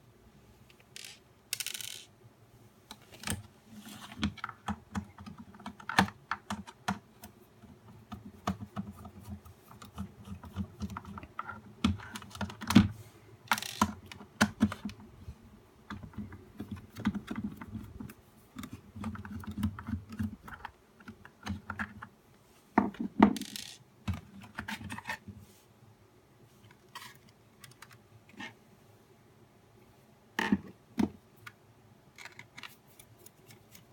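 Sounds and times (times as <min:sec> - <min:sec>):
plastic parts clicking and tapping: 0:00.7 - 0:02.1, 0:04.1 - 0:12.9, 0:13.5 - 0:15.0, 0:15.9 - 0:22.1, 0:22.8 - 0:25.2, 0:26.6 - 0:28.0, 0:30.4 - 0:32.8.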